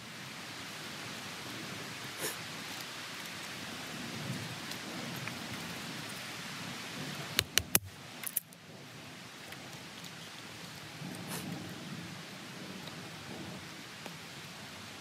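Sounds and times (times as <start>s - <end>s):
sharp cracks: 7.4s - 8.5s.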